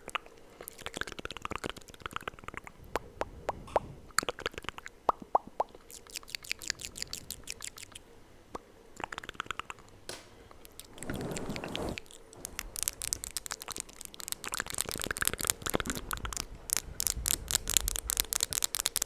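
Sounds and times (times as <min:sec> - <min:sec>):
wet mouth clicks and pops: 0:00.0 - 0:08.0, 0:12.6 - 0:19.0.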